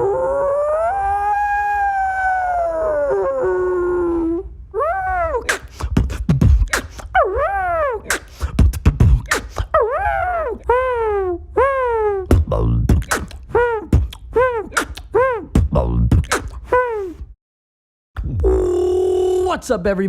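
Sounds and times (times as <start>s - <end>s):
person imitating a howl: 0.0s - 5.7s, 7.1s - 8.2s, 9.7s - 12.7s, 13.5s - 15.9s, 18.2s - 19.6s
beatboxed drum hits: 5.5s - 7.2s, 8.0s - 9.8s, 12.3s - 16.9s.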